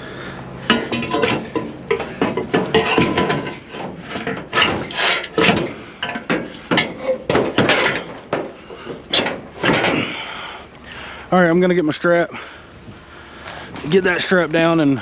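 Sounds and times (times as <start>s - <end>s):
aluminum scrap clanking: 0.6s - 10.4s.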